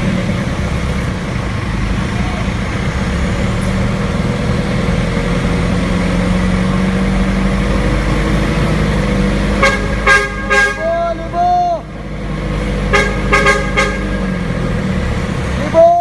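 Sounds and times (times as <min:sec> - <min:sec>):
vehicle engine running: 0:00.0 - 0:16.0
short horn toots: 0:09.6 - 0:11.4, 0:12.9 - 0:14.4.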